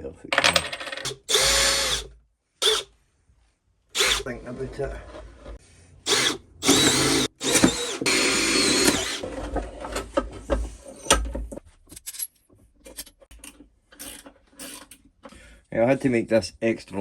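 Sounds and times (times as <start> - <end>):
power drill running: 1.1 - 2.9, 4.0 - 4.3, 6.0 - 9.2.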